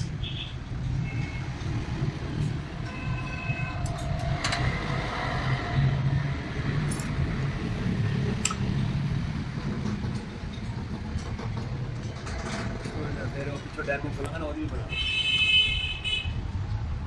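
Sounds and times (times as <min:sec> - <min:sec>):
sharp metallic clicks: 0:08.4 - 0:08.8.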